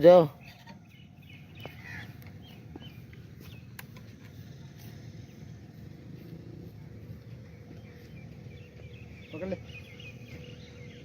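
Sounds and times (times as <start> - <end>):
steady low rumble: 0.3 - 11.0
high bird chirps: 7.3 - 11.0.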